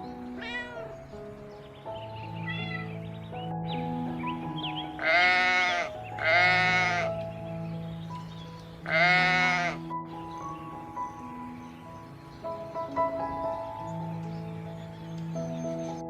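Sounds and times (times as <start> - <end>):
soft background music: 0.0 - 16.0
goat bleating: 5.0 - 7.1, 8.9 - 9.8.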